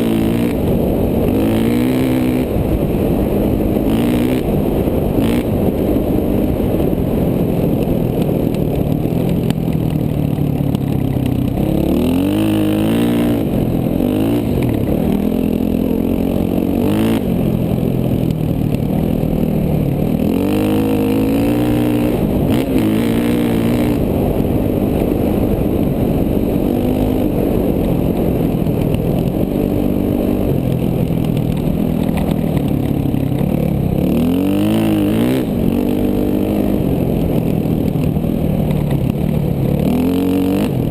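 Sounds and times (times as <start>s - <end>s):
dirt bike engine revving: 0.0s - 7.8s, 11.4s - 18.2s, 18.8s - 28.6s, 33.5s - 38.3s, 39.6s - 40.9s.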